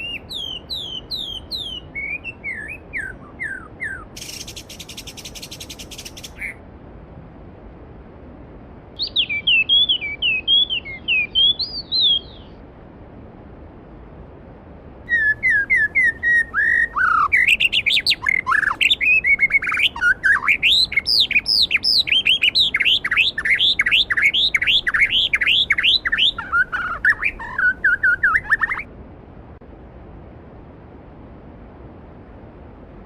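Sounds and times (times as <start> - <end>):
songbird singing: 0.0 - 6.6, 9.0 - 12.6, 15.1 - 28.9.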